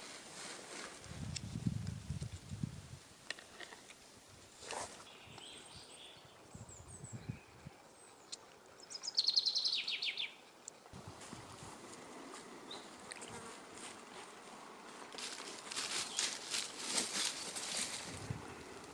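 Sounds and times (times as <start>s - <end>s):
songbird singing falling notes: 5.0s - 10.8s.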